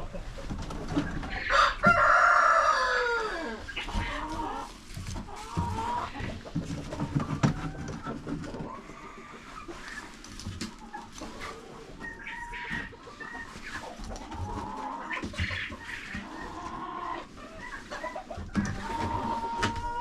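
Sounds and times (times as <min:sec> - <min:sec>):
chickens clucking: 0:00.0 - 0:20.0
rooster crowing: 0:01.4 - 0:03.6.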